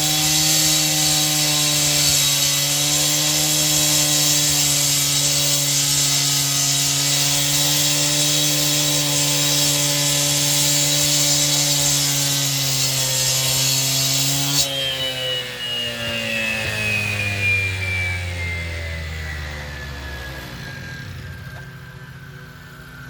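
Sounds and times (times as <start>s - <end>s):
power saw cutting wood: 0.0s - 21.8s
saw motor winding down: 0.0s - 23.0s.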